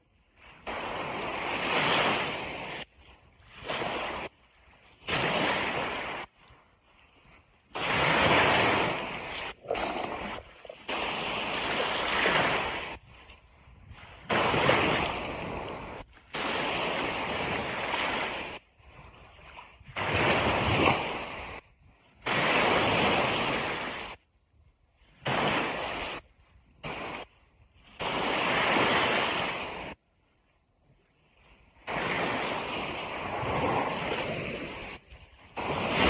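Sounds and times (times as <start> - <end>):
ocean surf washing on beach: 0.4 - 18.6, 31.8 - 36.0.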